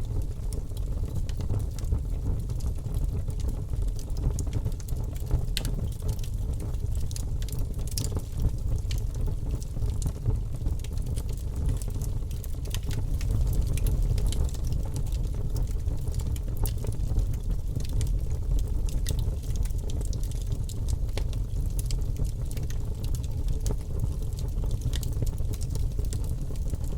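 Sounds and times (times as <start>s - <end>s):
logs crackling in fireplace: 0.0s - 26.9s
low rumble: 13.0s - 15.7s.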